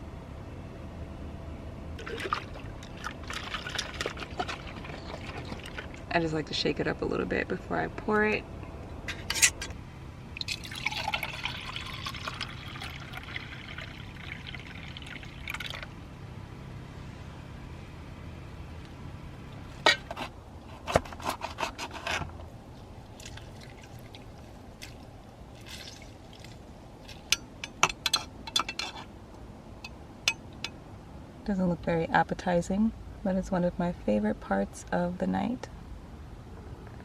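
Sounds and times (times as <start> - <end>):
drink pouring into cup: 10.4 - 15.9.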